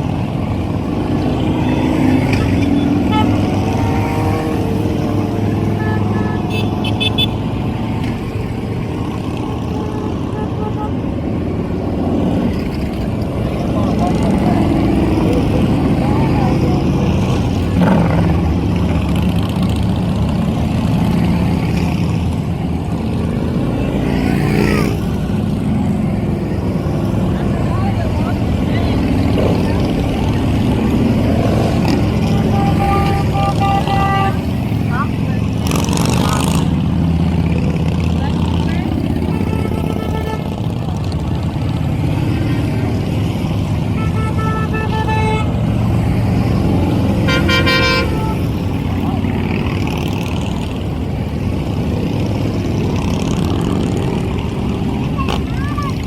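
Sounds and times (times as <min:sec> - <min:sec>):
motorcycle engines running: 0:00.0 - 0:56.0
vehicle horns honking: 0:00.9 - 0:07.7, 0:09.2 - 0:11.3, 0:30.9 - 0:36.6, 0:39.0 - 0:41.1, 0:43.6 - 0:49.6.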